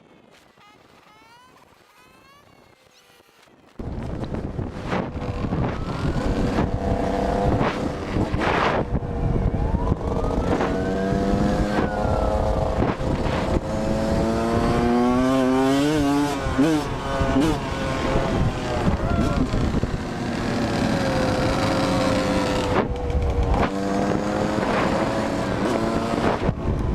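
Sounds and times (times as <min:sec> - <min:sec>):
road and wind noise: 0:00.0 - 0:26.9
vehicle engine revving: 0:10.2 - 0:26.6.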